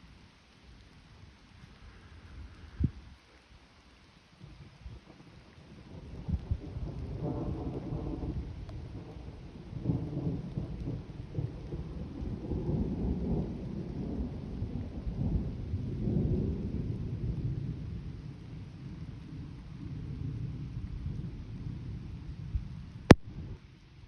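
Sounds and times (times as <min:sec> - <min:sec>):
rain falling: 0:00.0 - 0:24.0
thunder rumbling: 0:04.6 - 0:23.6.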